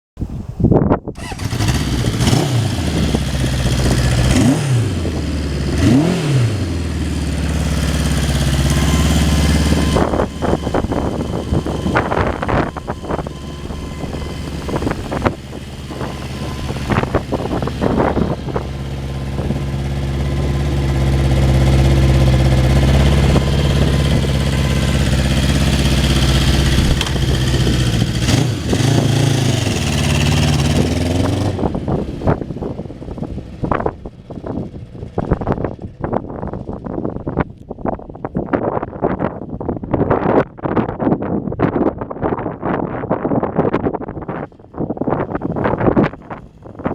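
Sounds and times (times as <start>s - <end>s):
motorcycle engine revving: 1.2s - 37.4s.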